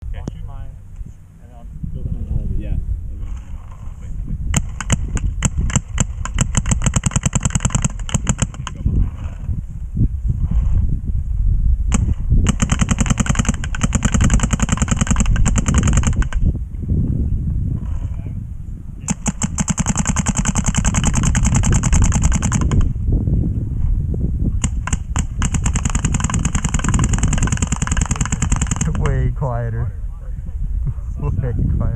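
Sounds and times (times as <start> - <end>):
steady low rumble: 0.0 - 31.9
paintball marker shots: 4.5 - 9.4, 11.9 - 16.5, 19.1 - 23.0, 24.6 - 29.2.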